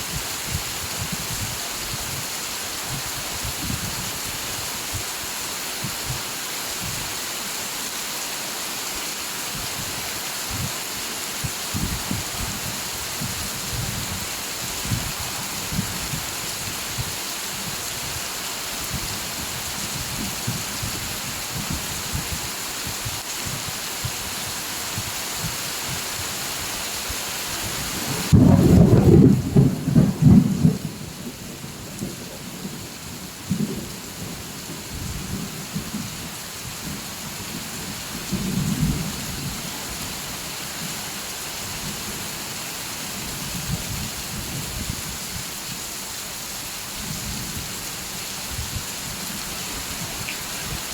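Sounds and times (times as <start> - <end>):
rain hiss: 0.0 - 50.9
thunder crack and rumble: 28.2 - 31.4.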